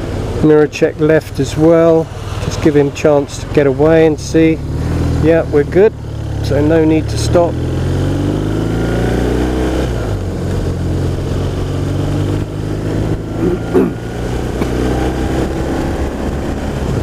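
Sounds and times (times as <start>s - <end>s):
motorcycle engine cruising: 0.0s - 17.0s
road noise: 0.0s - 17.0s
wind noise: 8.1s - 17.0s.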